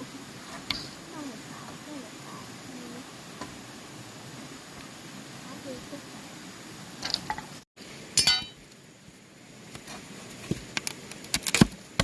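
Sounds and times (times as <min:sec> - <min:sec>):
clinks of hard objects: 0:08.2 - 0:08.6.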